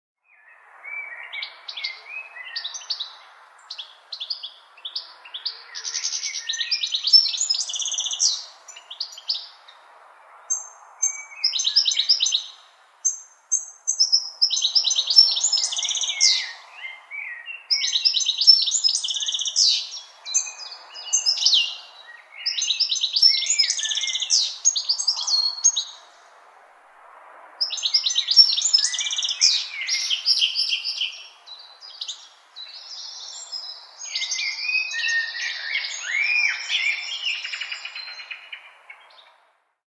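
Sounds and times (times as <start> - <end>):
songbirds singing trilled phrases: 0.2 - 9.8, 10.4 - 26.3, 27.6 - 39.4
faint background hiss: 0.3 - 39.7.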